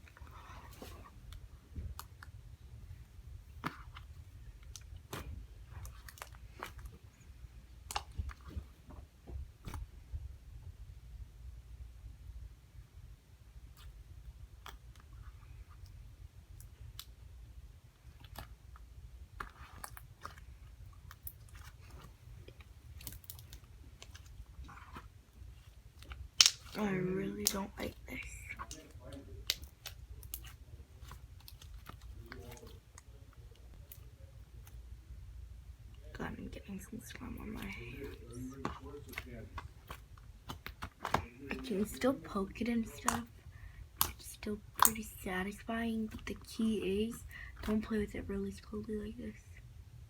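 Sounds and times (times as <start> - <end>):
slime clicking and popping: 26.0 - 32.6, 37.5 - 41.9, 42.8 - 43.3, 44.0 - 45.1.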